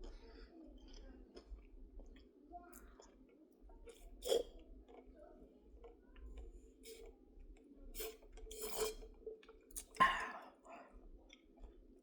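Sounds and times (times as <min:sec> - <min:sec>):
sipping through a straw: 0:08.0 - 0:09.0.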